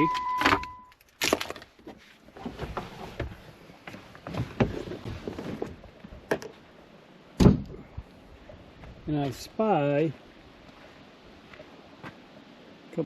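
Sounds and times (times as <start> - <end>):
footsteps on the ground: 8.7 - 12.3.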